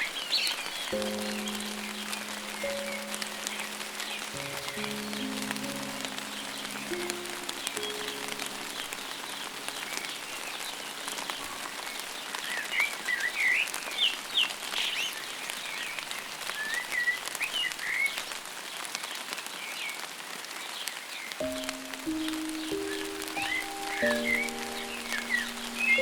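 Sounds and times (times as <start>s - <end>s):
songbird chirping and whistling: 0.0s - 11.7s, 21.4s - 26.0s
light rain pattering: 0.0s - 26.0s.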